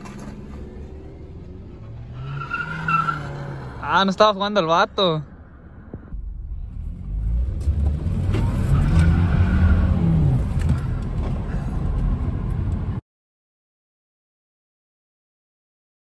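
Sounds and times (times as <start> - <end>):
car engine accelerating: 6.1 - 13.0.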